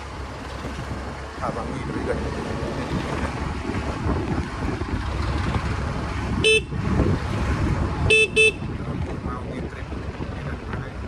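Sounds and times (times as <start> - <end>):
bus engine and road noise: 0.0 - 11.0
bus horn toot: 6.4 - 6.8, 8.1 - 8.7.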